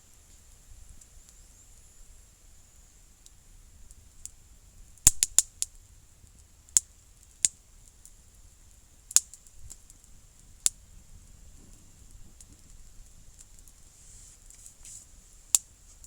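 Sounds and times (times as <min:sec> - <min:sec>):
campfire pops and snaps: 0:05.0 - 0:10.8, 0:11.6 - 0:13.8, 0:15.5 - 0:16.0.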